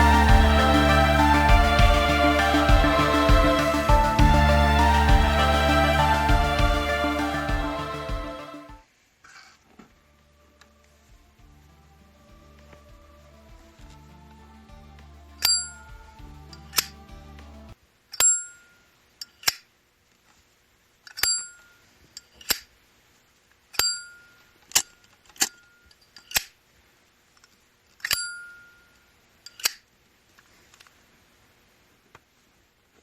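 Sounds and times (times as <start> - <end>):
background music: 0.0 - 8.8, 11.4 - 17.8.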